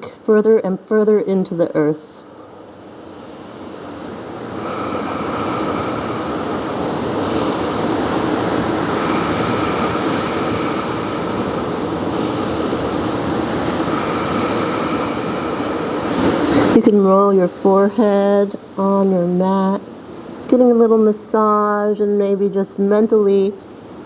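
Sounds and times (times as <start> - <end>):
loud rushing rumble: 2.4 - 16.8.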